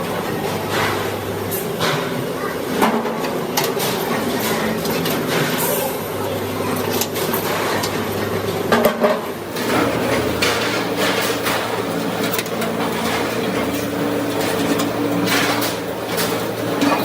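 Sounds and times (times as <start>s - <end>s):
factory machinery humming: 0.0s - 17.0s
metal knocks and clanks: 9.6s - 17.0s.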